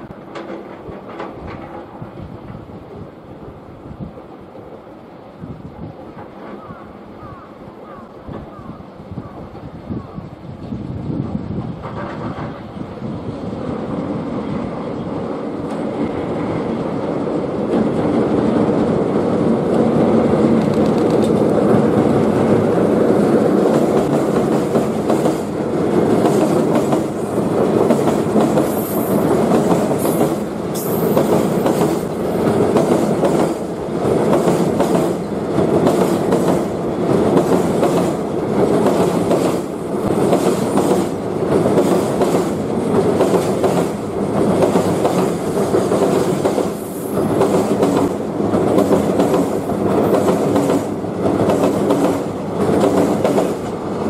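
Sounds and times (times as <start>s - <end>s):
clickety-clack of train wheels: 0.0s - 3.1s, 5.8s - 7.4s, 10.6s - 13.3s, 15.5s - 54.0s
locomotive running noise: 11.2s - 54.0s.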